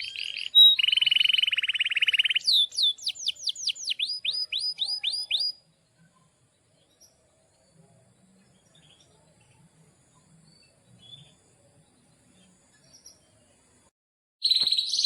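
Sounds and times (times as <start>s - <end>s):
canary singing whistled notes: 0.0s - 5.6s, 14.4s - 15.0s
faint bird chirps: 0.0s - 15.0s.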